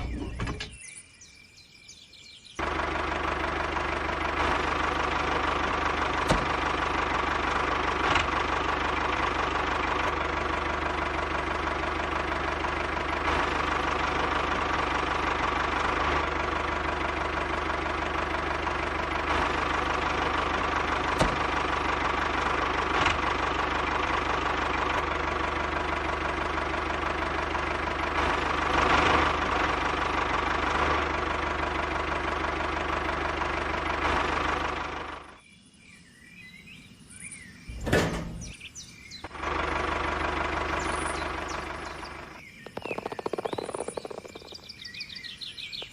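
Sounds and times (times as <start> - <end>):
small motor humming: 40.7 - 45.9.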